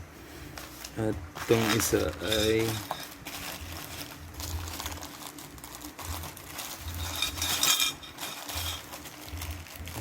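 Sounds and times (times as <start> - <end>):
parcel rustling and crinkling: 0.0 - 10.0.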